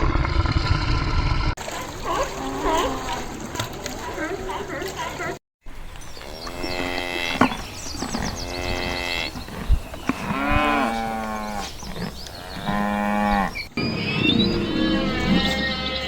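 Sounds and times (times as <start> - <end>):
cattle mooing: 10.0 - 16.0.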